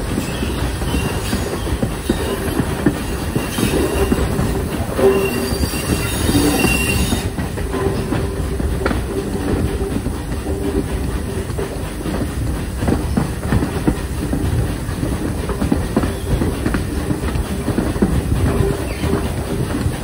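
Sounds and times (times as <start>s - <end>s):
train rumbling on track: 0.0s - 20.0s
faint wheel squeal: 5.0s - 7.4s.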